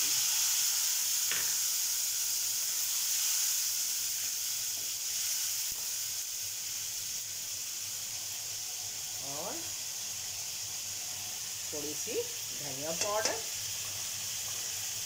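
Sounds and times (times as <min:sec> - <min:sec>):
paste sizzling in hot oil: 0:00.0 - 0:15.0.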